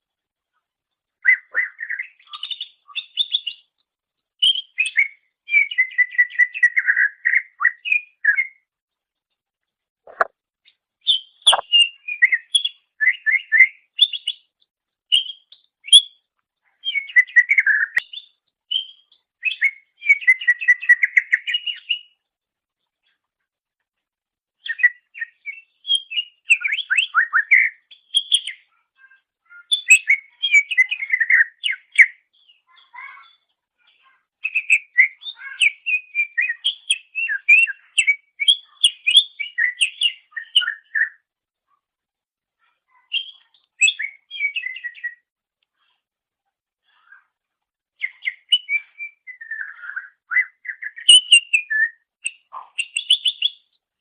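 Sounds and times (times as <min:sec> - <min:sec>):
bird chirping and whistling: 0:11.5 - 0:13.5, 0:43.2 - 0:45.2, 0:48.0 - 0:53.6.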